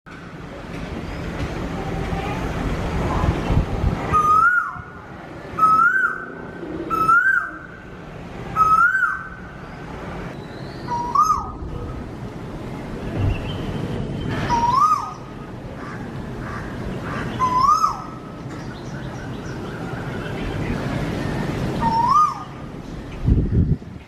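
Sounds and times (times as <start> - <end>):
low rumbling noise: 0.1 - 24.0
bird whistled calls: 4.1 - 4.9, 5.6 - 6.3, 6.9 - 7.8, 8.6 - 9.4, 10.4 - 11.6, 13.2 - 15.3, 17.4 - 18.2, 21.8 - 22.6.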